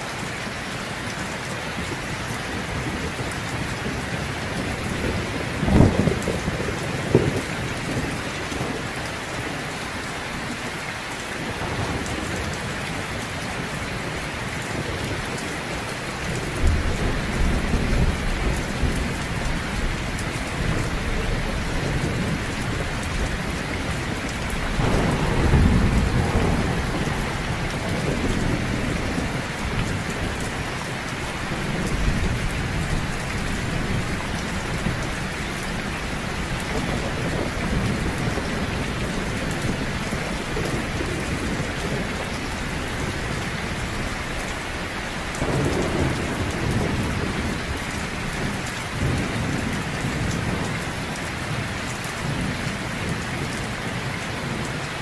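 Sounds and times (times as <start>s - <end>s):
heavy rain: 0.0s - 55.0s
thunder rolling: 2.6s - 8.9s, 16.4s - 44.5s, 45.3s - 51.0s.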